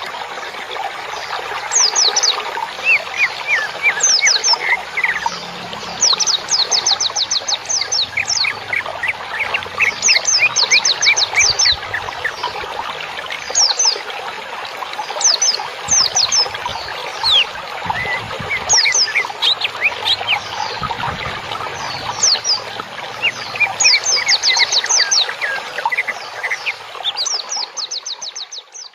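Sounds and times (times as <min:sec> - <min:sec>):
many birds chattering: 0:15.2 - 0:28.9.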